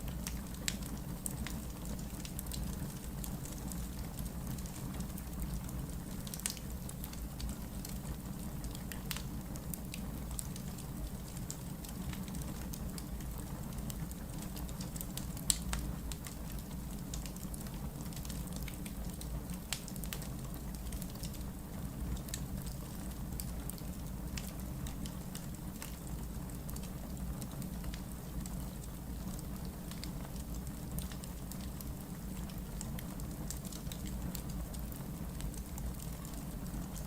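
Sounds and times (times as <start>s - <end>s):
low fire rumble: 0.0s - 37.0s
logs crackling and popping: 6.2s - 8.0s, 8.6s - 21.5s, 22.1s - 37.0s.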